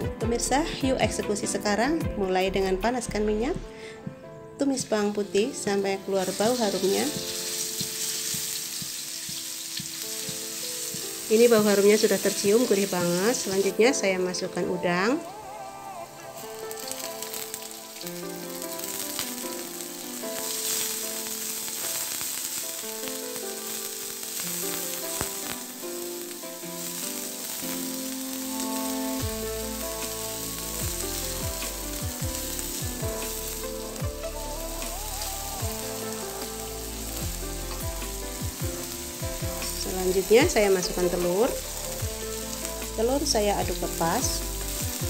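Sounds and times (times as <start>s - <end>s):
background music: 0.0s - 45.0s
food sizzling in a wok: 4.7s - 45.0s
bass beat: 30.8s - 35.9s.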